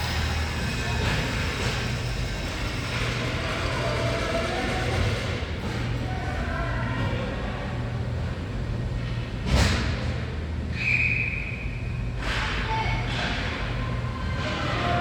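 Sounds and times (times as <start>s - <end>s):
low rink hum: 0.0s - 9.6s
referee's whistle: 10.8s - 11.8s.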